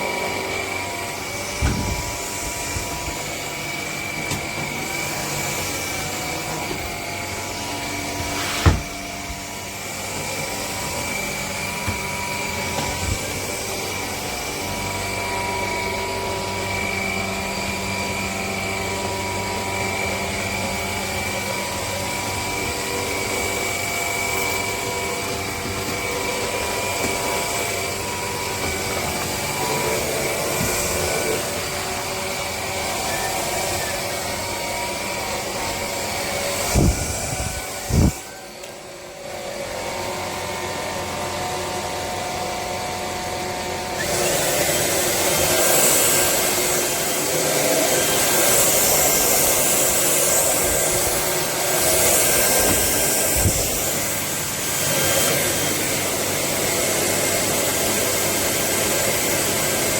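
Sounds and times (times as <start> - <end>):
vacuum cleaner motor whine: 0.0 - 59.9
loud knocks: 8.6 - 9.0.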